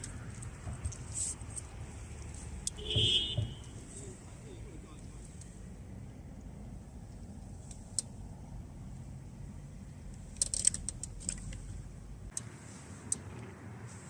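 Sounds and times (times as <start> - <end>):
small clicks and rattles: 0.0 - 2.8, 9.9 - 12.5.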